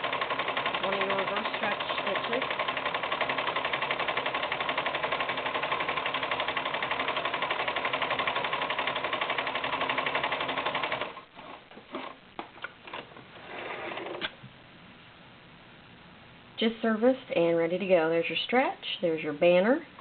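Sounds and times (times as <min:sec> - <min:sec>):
sewing machine stitching: 0:00.0 - 0:12.2, 0:12.9 - 0:14.3.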